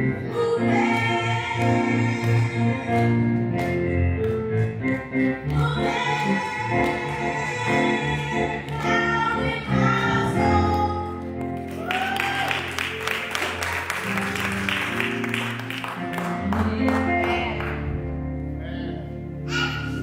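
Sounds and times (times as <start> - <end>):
choir singing with accompaniment: 0.0 - 3.4, 5.5 - 10.7.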